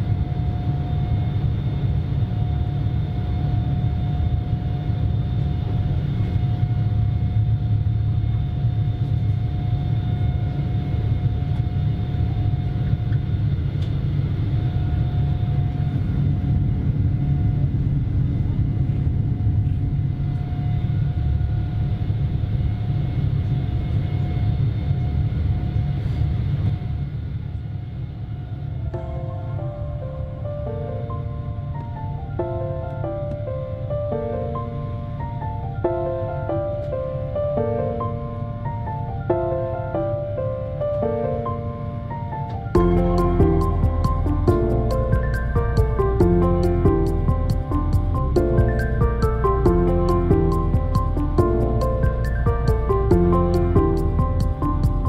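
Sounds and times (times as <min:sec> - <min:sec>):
jet cabin rumble: 0:00.0 - 0:55.0.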